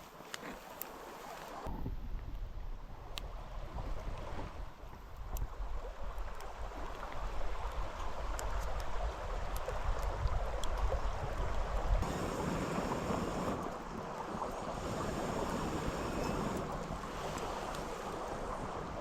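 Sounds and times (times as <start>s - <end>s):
wind rumbling on microphone: 1.6s - 19.0s
mountain stream rushing: 12.0s - 19.0s.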